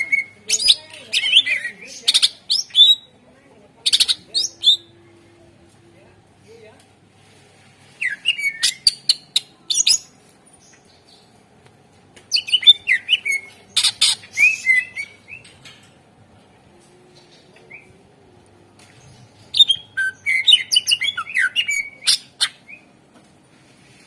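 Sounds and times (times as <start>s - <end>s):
bird chirping and whistling: 8.0s - 9.2s, 12.3s - 15.4s, 19.5s - 22.8s.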